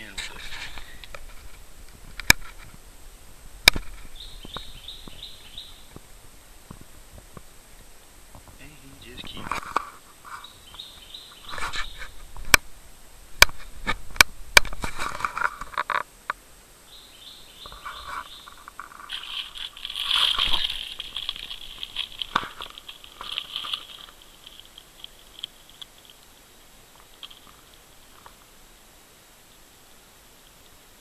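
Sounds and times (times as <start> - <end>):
birds chirping: 0.0 - 12.8, 16.8 - 28.6
brief rustle: 11.4 - 12.6, 13.4 - 16.1, 17.7 - 26.3.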